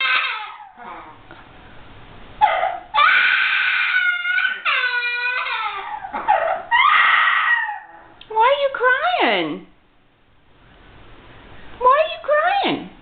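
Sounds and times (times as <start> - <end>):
parrot wailing calls: 0.0 - 1.2, 2.4 - 8.2.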